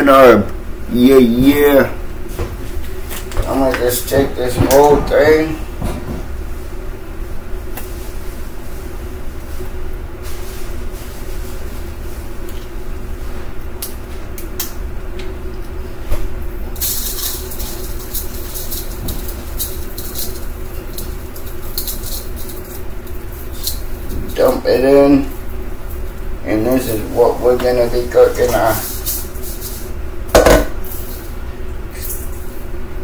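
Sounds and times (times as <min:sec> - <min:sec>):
low mechanical hum: 0:00.0 - 0:33.0
dry rattling hiss with ticks: 0:16.6 - 0:30.0.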